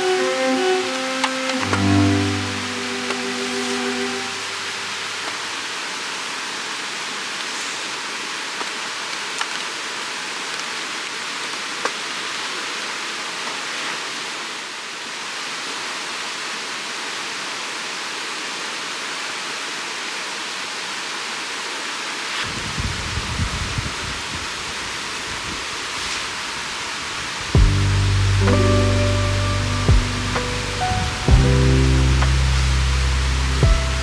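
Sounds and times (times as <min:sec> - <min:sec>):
river water rushing: 0:00.0 - 0:16.8, 0:26.4 - 0:34.0
low rumble: 0:27.6 - 0:34.0.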